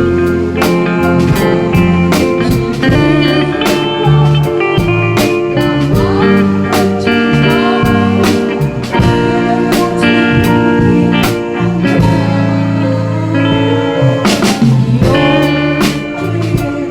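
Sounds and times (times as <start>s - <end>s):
bass guitar: 0.0s - 16.9s
drums: 0.0s - 16.9s
keyboard: 0.0s - 16.9s
lead guitar bending notes: 0.0s - 16.9s.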